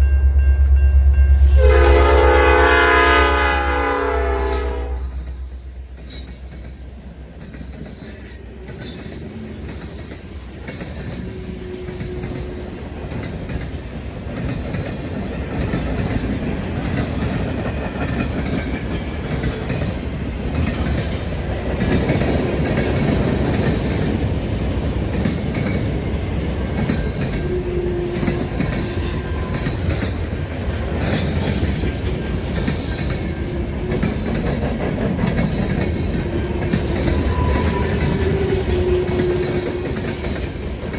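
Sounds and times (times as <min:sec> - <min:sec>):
train rumbling on rails: 0:00.0 - 0:40.9
wheels clacking over rail joints: 0:04.5 - 0:40.9
wheel squeals: 0:36.7 - 0:39.8.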